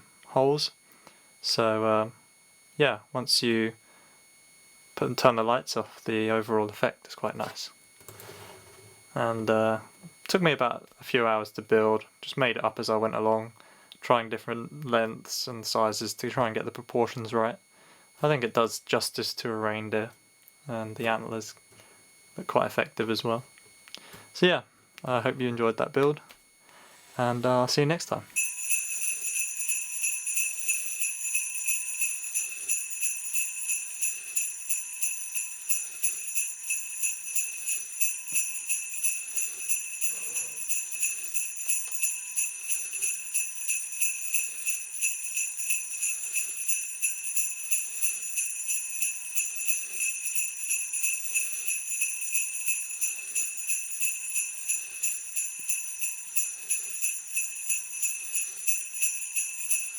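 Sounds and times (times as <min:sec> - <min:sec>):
sleigh bells jingling: 0:28.4 - 0:59.9.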